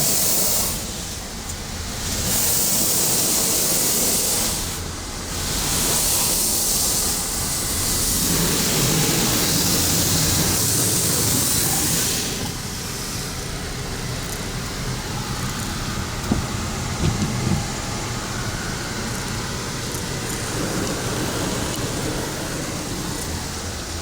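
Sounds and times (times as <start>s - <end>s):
car wash machinery running: 0.0s - 24.0s
car wash spraying water: 0.0s - 24.0s
short knocks: 16.2s - 17.8s.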